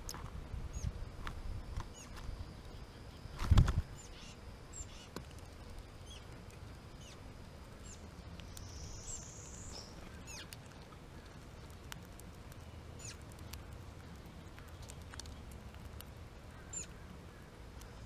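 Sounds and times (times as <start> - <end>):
songbird chip calls: 3.9 - 5.1, 6.9 - 7.2, 8.6 - 10.6, 13.0 - 13.2, 16.5 - 17.5.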